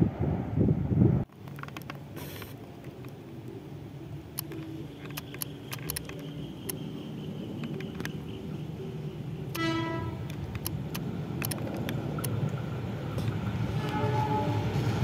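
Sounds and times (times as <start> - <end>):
diesel train engine rumble: 0.0 - 15.0
light clicks: 4.3 - 6.9, 7.6 - 8.4, 10.2 - 12.6.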